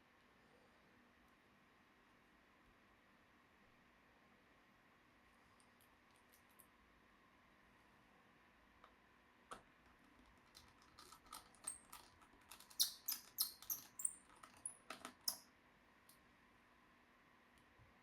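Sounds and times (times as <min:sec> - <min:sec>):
small clicks and taps of tools: 0:08.8 - 0:16.2.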